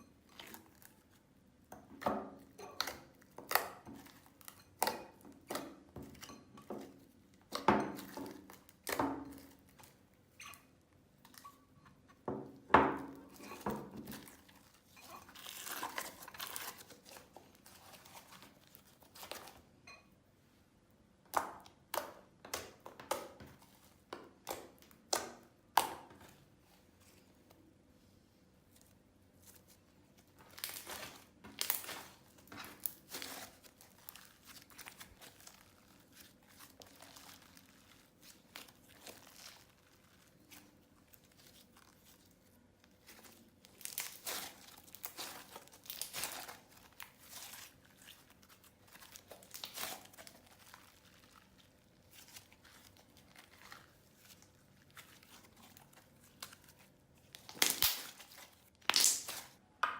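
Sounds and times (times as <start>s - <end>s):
hands squishing slime: 28.6s - 59.7s.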